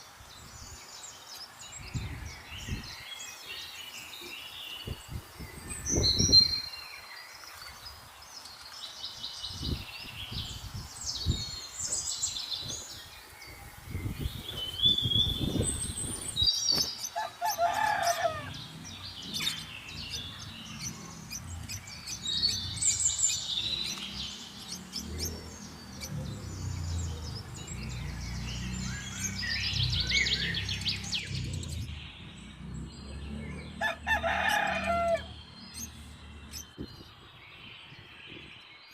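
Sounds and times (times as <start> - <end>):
small birds chirping: 0.0 - 38.9
rooster crowing: 17.1 - 18.8, 33.7 - 35.9.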